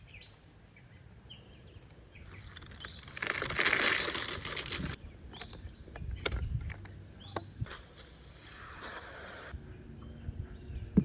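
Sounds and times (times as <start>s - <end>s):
small birds' wings fluttering: 2.2s - 5.0s.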